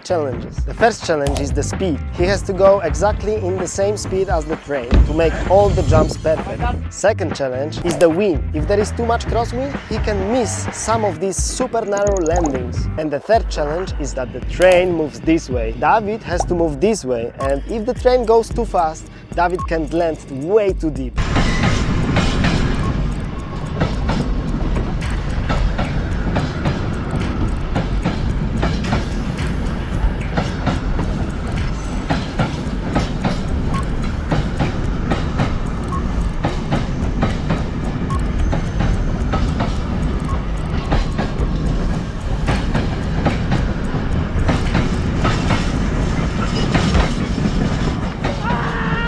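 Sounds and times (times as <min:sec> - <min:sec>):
train cars rumbling: 0:00.6 - 0:07.2, 0:12.7 - 0:49.0
wheels clicking over rails: 0:18.2 - 0:48.6.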